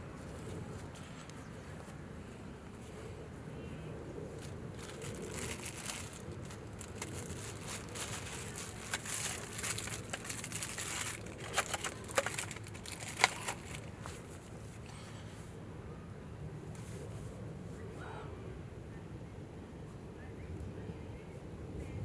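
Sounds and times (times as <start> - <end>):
material crinkling and rustling: 4.4 - 14.5.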